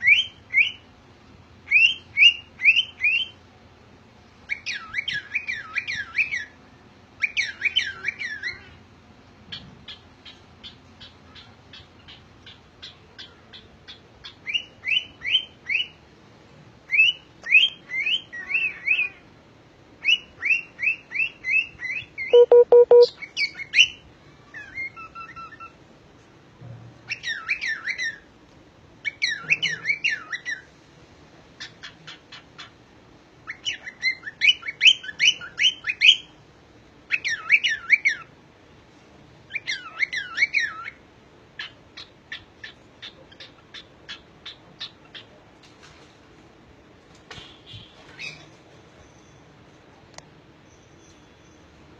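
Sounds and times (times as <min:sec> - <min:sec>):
cockatiel chirping and whistling: 0:20.0 - 0:23.9.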